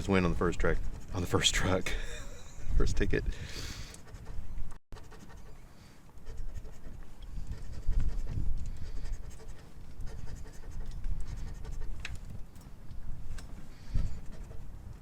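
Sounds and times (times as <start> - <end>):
scratching lottery ticket: 5.0 - 5.6, 6.2 - 12.0.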